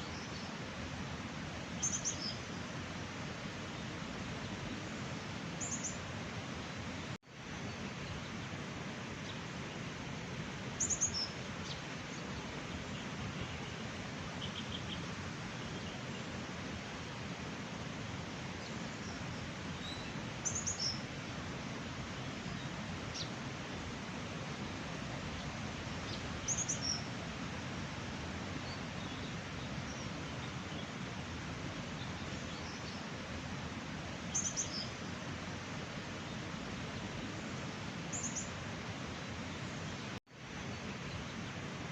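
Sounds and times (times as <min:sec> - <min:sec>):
rushing stream water: 0:00.0 - 0:41.9
faint bird chirps: 0:01.8 - 0:02.5, 0:10.8 - 0:13.8, 0:14.4 - 0:16.3, 0:18.6 - 0:21.1, 0:26.0 - 0:27.1, 0:34.3 - 0:35.1, 0:38.1 - 0:38.6.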